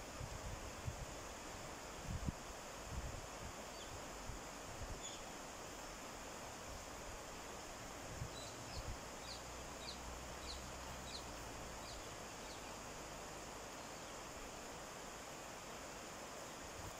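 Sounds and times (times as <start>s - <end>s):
steady outdoor hiss: 0.0s - 16.9s
small bird chirping: 5.0s - 5.3s, 8.3s - 12.9s.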